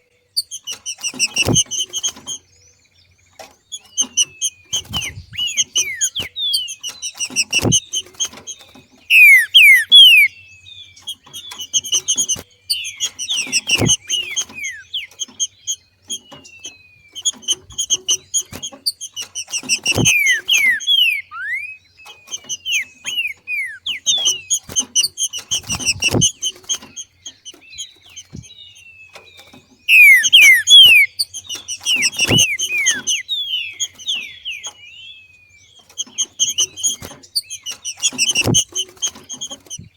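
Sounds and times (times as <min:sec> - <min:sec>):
bird chips and whistled notes: 0:00.2 - 0:02.7, 0:03.3 - 0:39.9.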